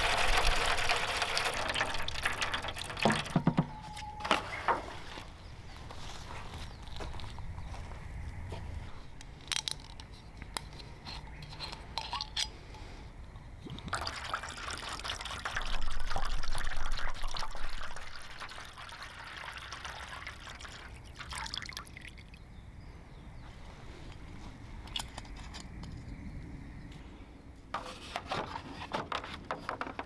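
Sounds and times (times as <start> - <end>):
liquid pouring into container: 0.0 - 3.8, 13.7 - 22.3.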